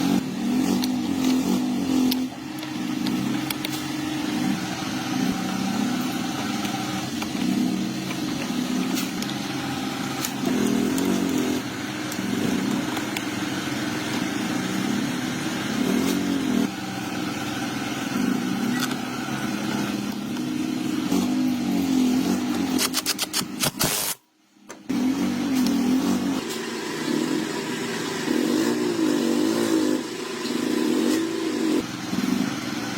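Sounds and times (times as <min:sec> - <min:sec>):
small motorcycle engine revving: 0:00.0 - 0:24.2, 0:24.9 - 0:32.9
quick clicks: 0:22.7 - 0:24.2.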